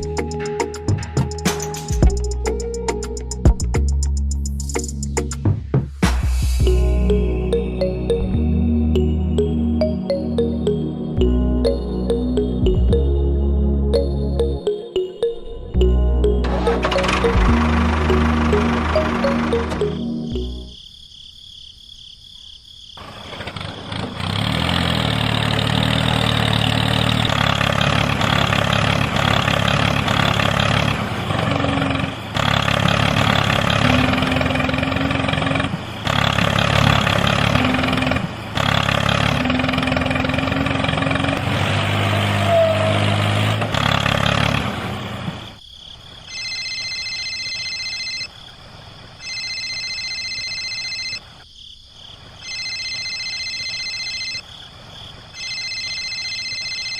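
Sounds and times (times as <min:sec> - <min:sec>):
small engine running: 0:16.4 - 0:20.0, 0:23.0 - 0:45.6
insects trilling: 0:20.3 - 0:23.2, 0:45.4 - 0:56.9.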